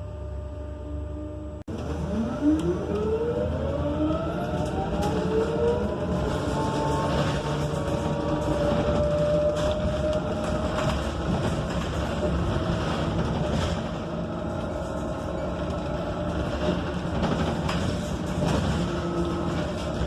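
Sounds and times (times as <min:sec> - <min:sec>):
road and tyre rumble: 0:01.6 - 0:20.0
bus body rattles and clicks: 0:04.1 - 0:20.0.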